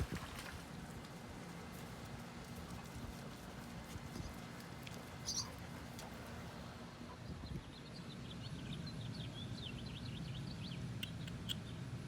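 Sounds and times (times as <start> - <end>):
low outdoor background noise: 0.0 - 12.0
small bird chirping: 9.4 - 11.8.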